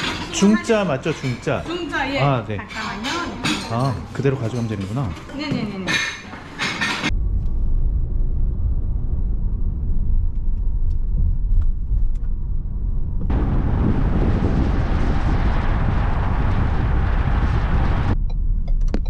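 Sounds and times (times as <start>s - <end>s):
engine and road rumble: 6.0s - 19.0s.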